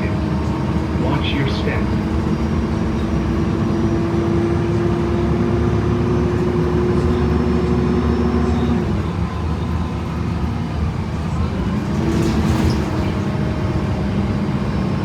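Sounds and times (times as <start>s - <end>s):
bus drivetrain rumble: 0.0s - 15.0s.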